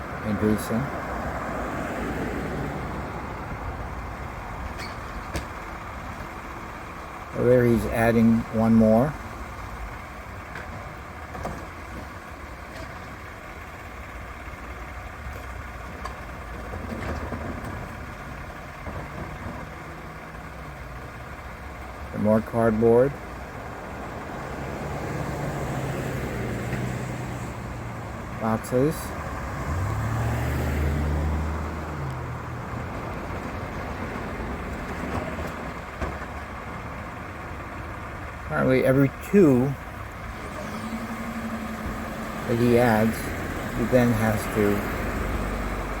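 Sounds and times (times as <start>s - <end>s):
truck engine idling: 0.0s - 46.0s.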